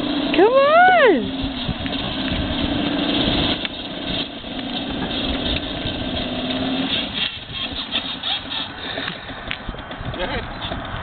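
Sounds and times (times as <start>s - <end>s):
toy motorcycle motor humming: 6.9s - 11.0s.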